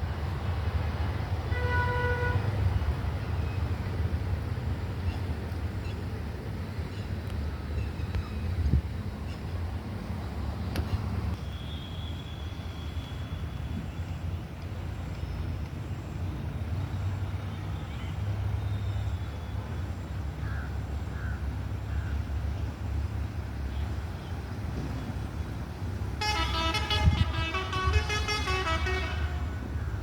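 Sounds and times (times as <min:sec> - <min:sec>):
traffic rumble: 0:00.0 - 0:30.0
multi-tone vehicle horn: 0:01.5 - 0:02.6, 0:26.2 - 0:29.8.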